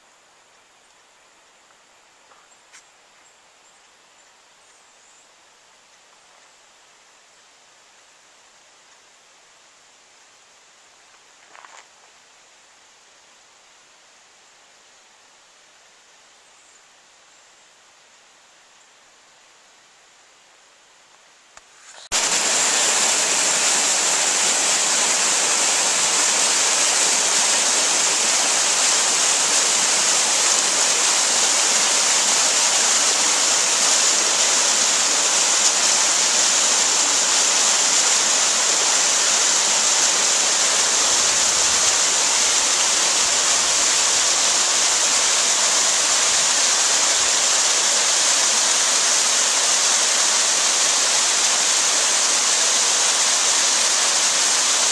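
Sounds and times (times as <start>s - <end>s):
steady rushing hiss: 0.0s - 54.9s.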